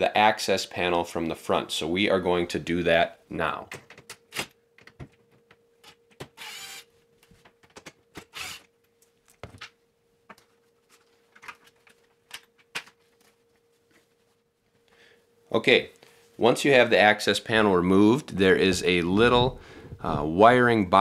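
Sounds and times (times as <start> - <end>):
impact driver whirring: 6.2 - 6.9, 8.2 - 8.7.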